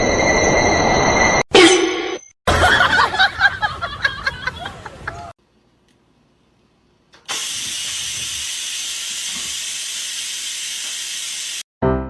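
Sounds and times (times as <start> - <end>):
loud steady hiss: 7.3 - 11.6.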